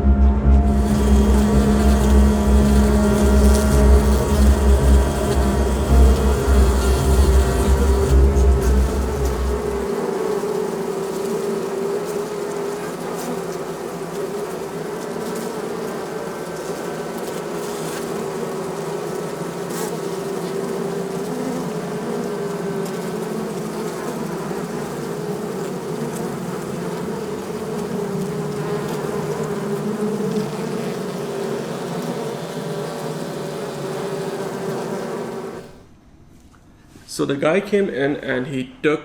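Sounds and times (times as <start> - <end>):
bees buzzing: 0.0 - 35.9.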